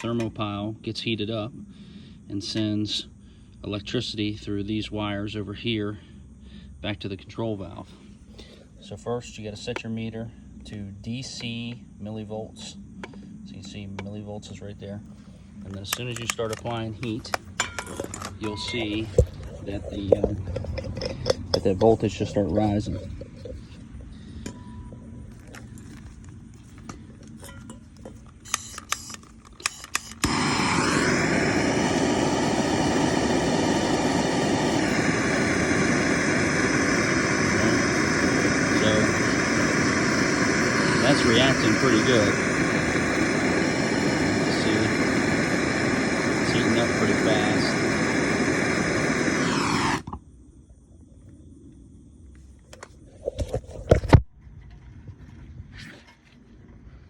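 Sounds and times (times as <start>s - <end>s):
loud rushing of heater: 11.1s - 50.2s
torch igniter clicks: 15.6s - 22.3s, 25.3s - 50.2s
gas torch flame roaring: 25.2s - 52.1s.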